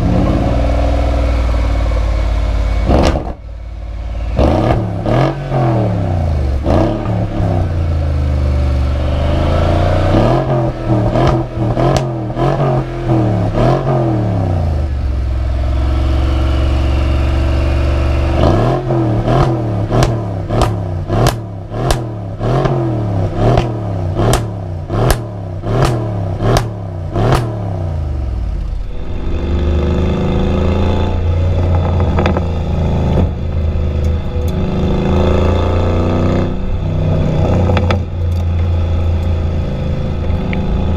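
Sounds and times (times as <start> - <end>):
car engine accelerating: 0.0 - 40.9
exhaust cracks: 30.8 - 40.9.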